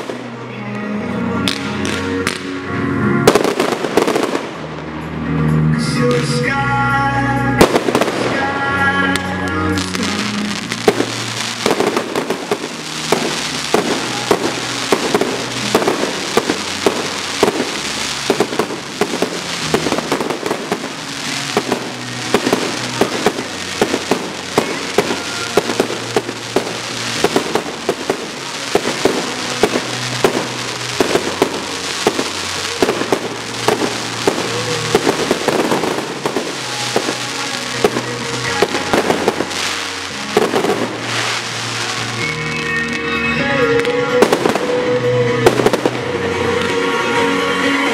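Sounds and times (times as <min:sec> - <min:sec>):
fireworks bursting with sharp bangs: 0:00.0 - 0:00.4, 0:01.4 - 0:05.2, 0:07.6 - 0:47.0
music playing: 0:00.0 - 0:47.9.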